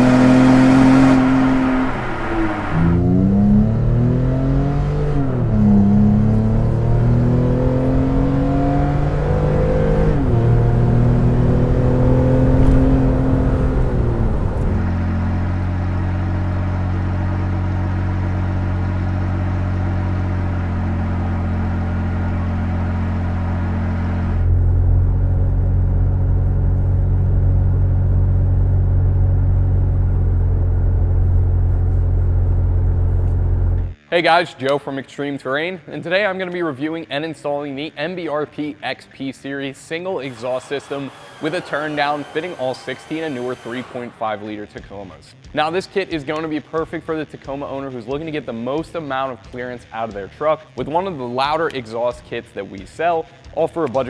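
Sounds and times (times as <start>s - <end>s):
truck exhaust accelerating: 0.0s - 34.0s, 40.2s - 44.2s.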